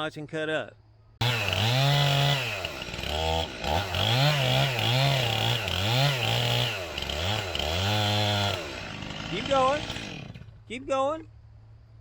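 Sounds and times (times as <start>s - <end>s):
chainsaw cutting wood: 1.2s - 10.6s.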